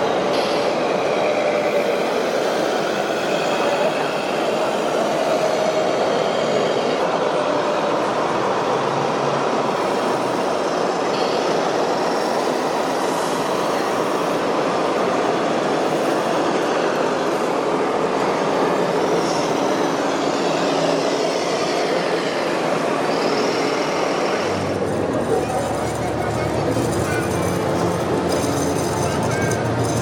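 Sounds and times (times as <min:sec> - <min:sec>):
mechanical running noise: 0:18.4 - 0:30.0.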